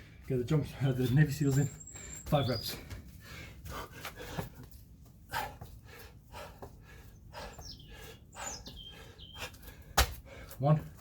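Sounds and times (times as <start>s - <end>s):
man breathing hard: 2.8s - 10.6s.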